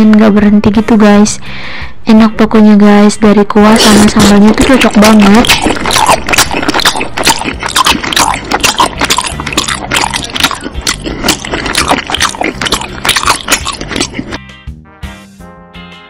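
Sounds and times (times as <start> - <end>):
chewing and lip-smacking: 3.8 - 14.4.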